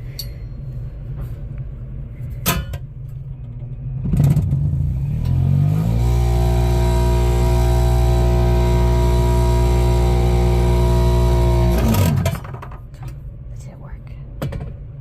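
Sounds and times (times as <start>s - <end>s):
spin dryer motor whining: 5.1s - 12.5s.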